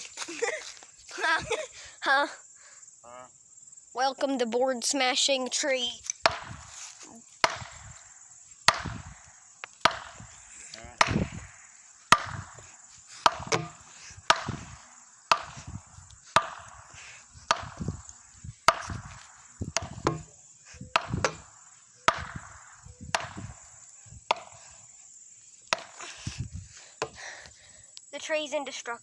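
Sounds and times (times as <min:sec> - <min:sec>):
wooden board whacking a tree: 0:06.1 - 0:24.9, 0:25.6 - 0:27.3.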